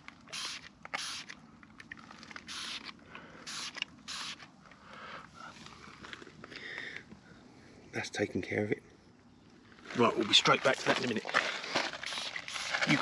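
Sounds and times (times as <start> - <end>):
spray bottle hissing sprays: 0.3 - 1.3, 2.5 - 4.5, 12.0 - 13.0.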